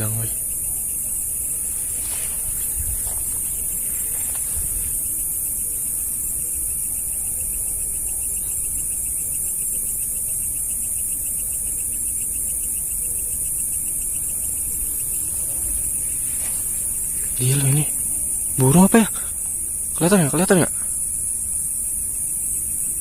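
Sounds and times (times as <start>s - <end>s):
insects shrilling: 0.0s - 23.0s
pulsing insect trill: 0.0s - 23.0s
wind rumble on microphone: 1.6s - 5.8s.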